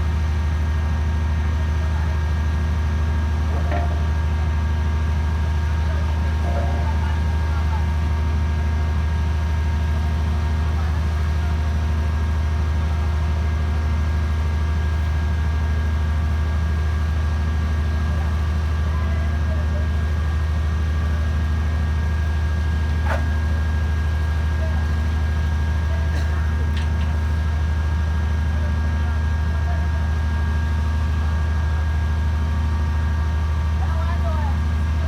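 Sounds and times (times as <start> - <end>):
pile-driving machine drone: 1.9 - 9.5.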